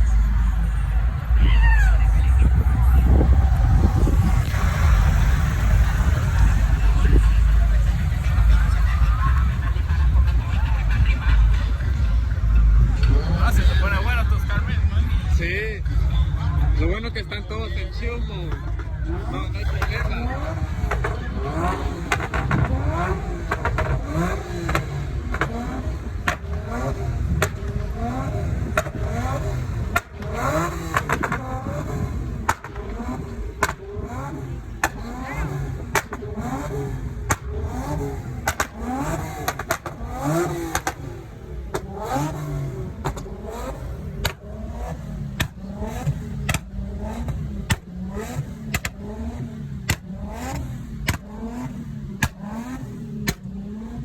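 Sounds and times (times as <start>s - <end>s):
car engines revving: 0.0s - 54.0s
sharp cracks: 37.2s - 41.1s.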